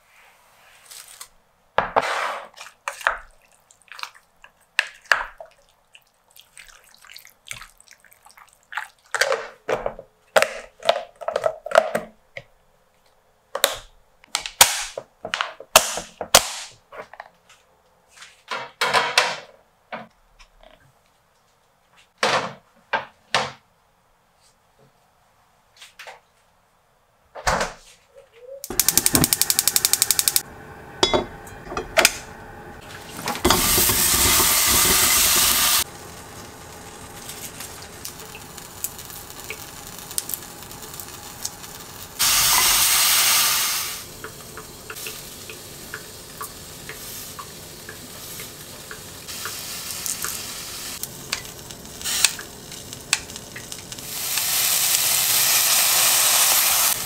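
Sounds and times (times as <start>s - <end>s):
food sizzling in a pan: 31.8s - 57.0s
kitchen clicks and knocks: 33.1s - 35.8s.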